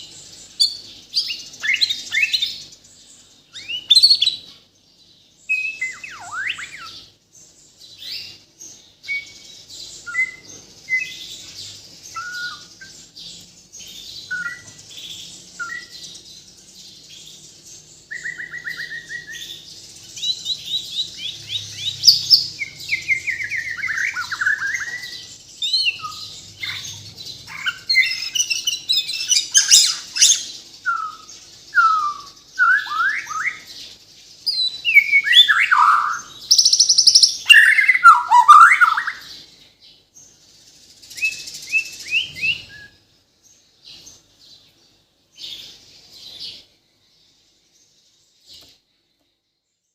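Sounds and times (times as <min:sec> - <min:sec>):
songbird whistles and trills: 0:00.0 - 0:02.8, 0:03.5 - 0:04.6, 0:05.4 - 0:07.1, 0:08.0 - 0:16.2, 0:18.0 - 0:33.8, 0:34.4 - 0:39.3, 0:41.0 - 0:43.1.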